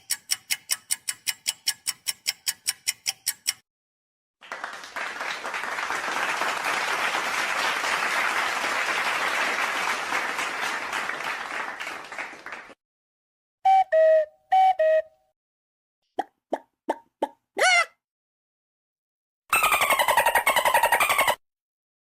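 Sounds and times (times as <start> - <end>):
crowd applauding: 4.4 - 12.8.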